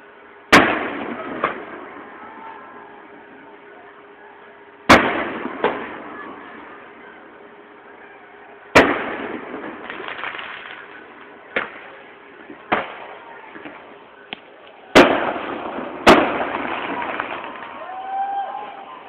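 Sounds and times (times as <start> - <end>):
fireworks booming with echo: 0.0 - 19.0
small firework pops: 8.8 - 15.3, 16.0 - 17.9.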